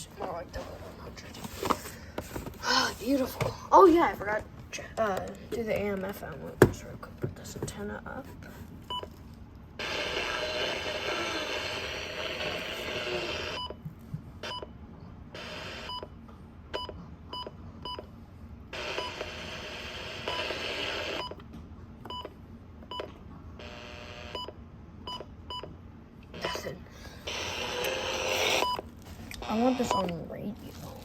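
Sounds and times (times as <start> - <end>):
hissing static from speaker: 9.8 - 13.6.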